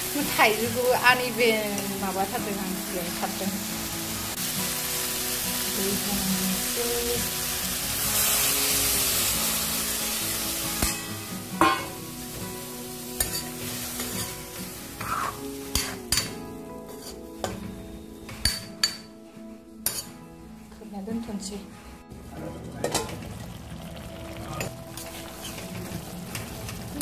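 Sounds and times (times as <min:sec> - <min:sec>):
food sizzling in a wok: 0:00.0 - 0:19.1, 0:19.8 - 0:20.3, 0:22.8 - 0:27.0
steel spatula scraping wok: 0:13.2 - 0:16.3, 0:16.9 - 0:17.3, 0:19.8 - 0:20.2.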